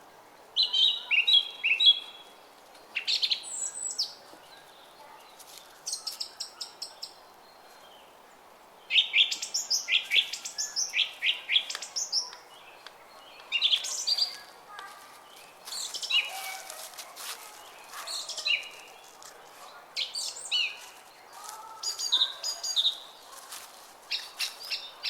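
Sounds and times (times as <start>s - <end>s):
faint murmur of a brook: 0.0s - 25.0s
songbird chirping: 0.4s - 25.0s.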